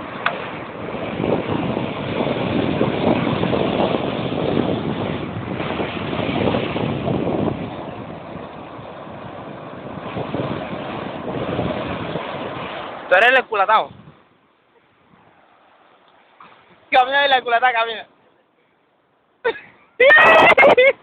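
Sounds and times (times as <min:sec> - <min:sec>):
wind on microphone: 0:00.0 - 0:14.3
surf at shoreline: 0:00.0 - 0:18.5, 0:19.4 - 0:21.0.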